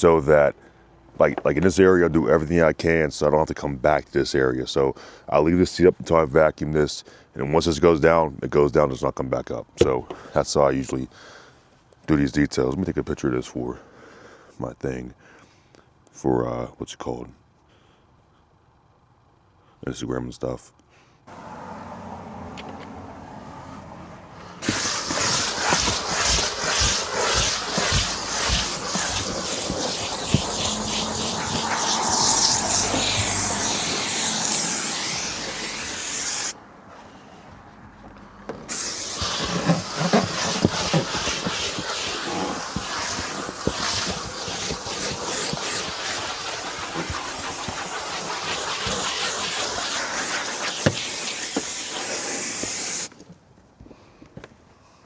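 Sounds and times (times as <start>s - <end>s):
steam cleaner hissing: 24.6s - 36.6s, 38.7s - 53.1s.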